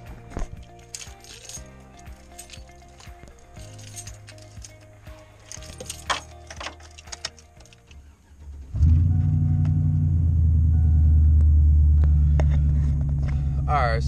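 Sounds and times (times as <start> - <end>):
car engine starting and idling: 0.0 - 14.0
light clicks and rattles: 0.1 - 8.1.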